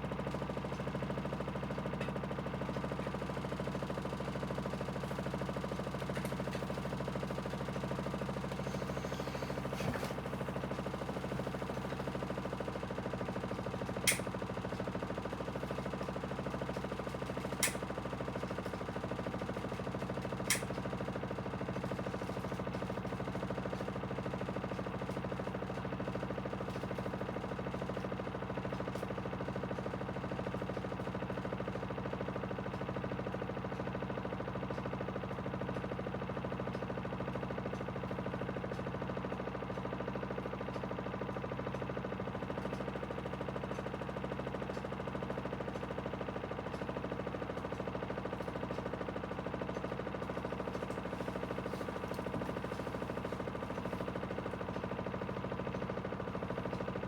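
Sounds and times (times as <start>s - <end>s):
washing machine motor humming: 5.9s - 12.2s, 50.4s - 54.4s.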